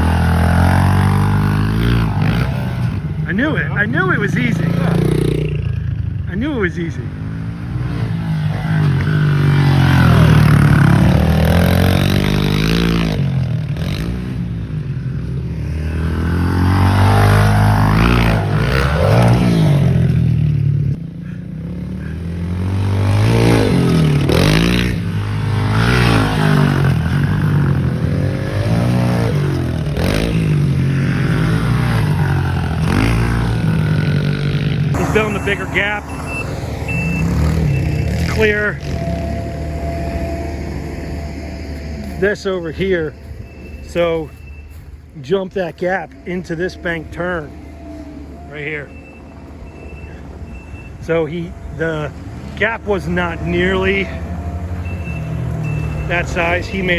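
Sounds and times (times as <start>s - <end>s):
pit bike engines revving: 0.0s - 56.9s.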